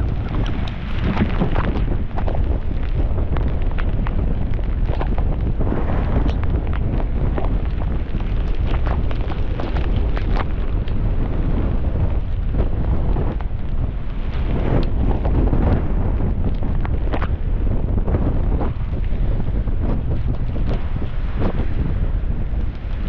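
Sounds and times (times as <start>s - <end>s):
sharp taps and crackles: 0.0s - 5.6s, 6.2s - 11.0s, 16.5s - 17.4s
wind buffeting microphone: 0.0s - 23.0s.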